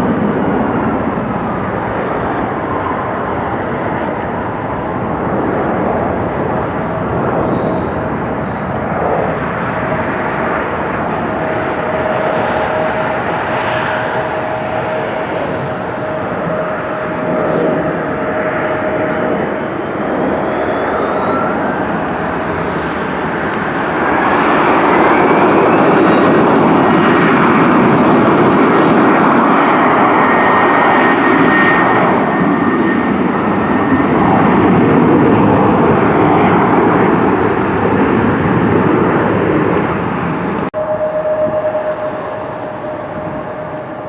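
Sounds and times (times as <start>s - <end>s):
jet airliner engine rush: 0.0s - 44.0s
faint whistling tones: 20.4s - 23.1s, 40.8s - 44.0s.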